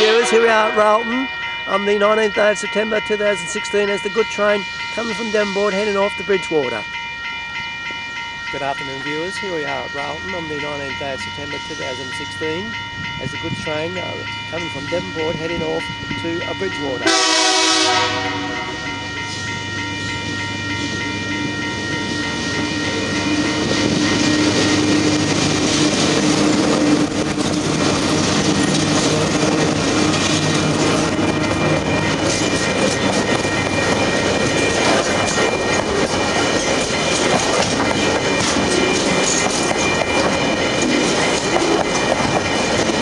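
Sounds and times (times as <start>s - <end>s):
train horn: 0.0s - 1.2s, 17.0s - 18.9s
diesel locomotive engines running: 0.0s - 43.0s
level crossing bells ringing: 0.0s - 43.0s
wagon wheels clacking over rail joints: 25.3s - 43.0s.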